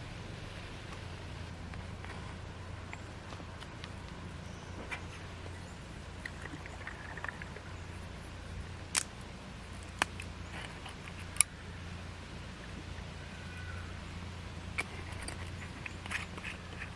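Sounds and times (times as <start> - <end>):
steady low hum: 0.0 - 16.9
sharp clicks: 8.9 - 9.2.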